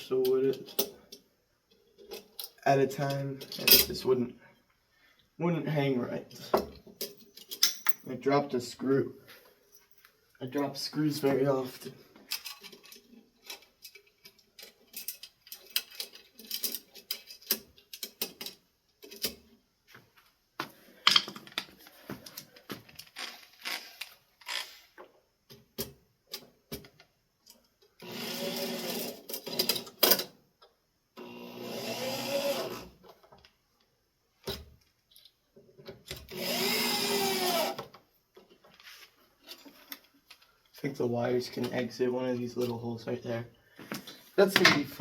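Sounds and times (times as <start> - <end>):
screws and metal parts clicking: 12.3 - 19.5
power drill driving screws: 28.0 - 29.8, 31.2 - 32.9, 36.3 - 37.8.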